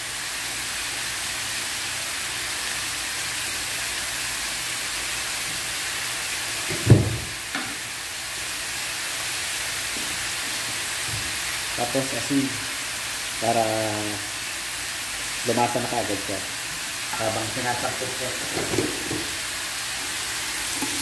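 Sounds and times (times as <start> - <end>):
pork ribs sizzling in hot oil: 0.0 - 21.0
dull thump: 6.7 - 7.3.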